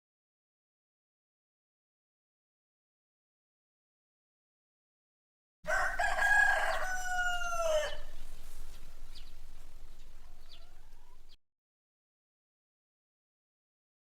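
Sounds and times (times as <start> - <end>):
rooster crowing: 5.7 - 11.4.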